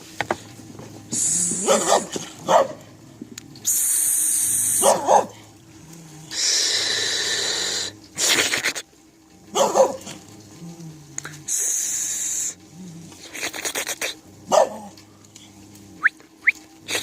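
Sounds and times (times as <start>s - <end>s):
hiss-like noise: 0.0s - 2.5s, 3.5s - 5.4s, 6.2s - 9.0s, 11.0s - 14.5s
dog barking: 1.6s - 2.8s, 4.8s - 5.4s, 9.5s - 10.2s, 14.5s - 14.9s.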